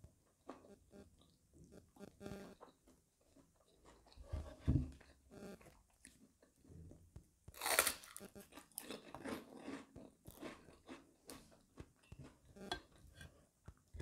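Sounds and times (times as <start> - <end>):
person chewing crunchy food: 7.5 - 14.0.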